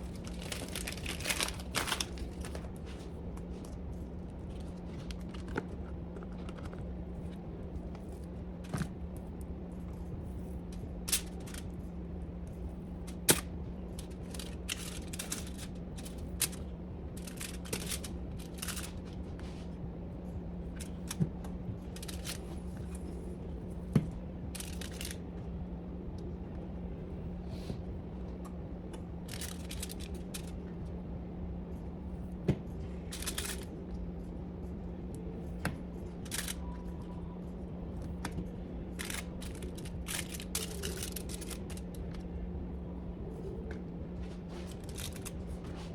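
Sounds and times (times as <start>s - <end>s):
packaging rustling and crinkling: 0.0s - 3.7s, 44.4s - 45.9s
appliance humming: 0.0s - 45.9s
objects clicking and knocking: 39.0s - 42.1s.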